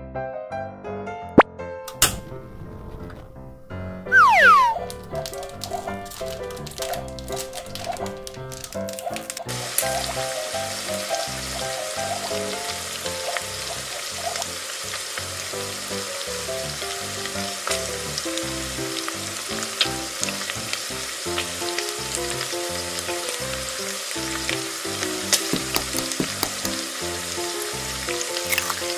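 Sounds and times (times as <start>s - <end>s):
frying sizzle: 3.4s - 28.9s
cheerful background music: 4.1s - 13.4s, 21.2s - 28.9s.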